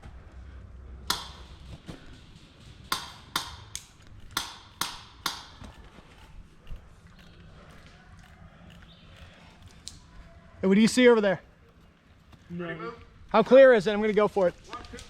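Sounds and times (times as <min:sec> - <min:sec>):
airsoft gun shots: 0:01.1 - 0:05.8.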